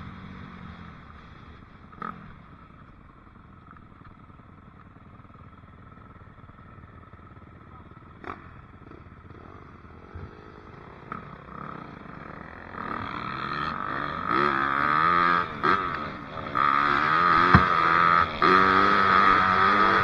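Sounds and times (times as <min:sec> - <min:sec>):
dirt bike engine revving: 0:17.2 - 0:17.9.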